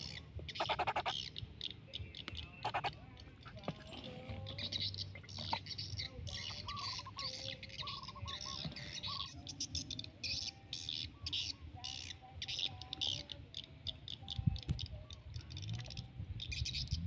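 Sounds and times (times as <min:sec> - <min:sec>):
birds whistling: 0:00.0 - 0:03.7, 0:04.3 - 0:17.0
birds chattering: 0:00.0 - 0:17.0.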